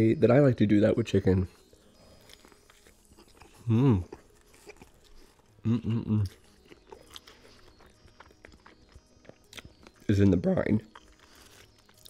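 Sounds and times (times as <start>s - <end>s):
chewing with mouth clicks: 1.6s - 10.1s, 10.8s - 12.0s.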